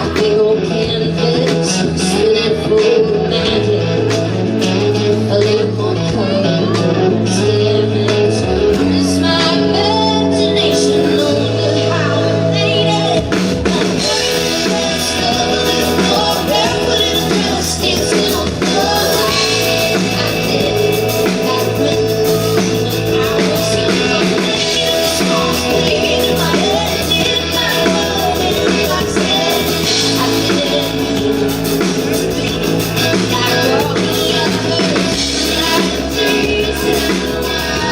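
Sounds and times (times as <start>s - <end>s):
live rock band playing: 0.0s - 37.9s.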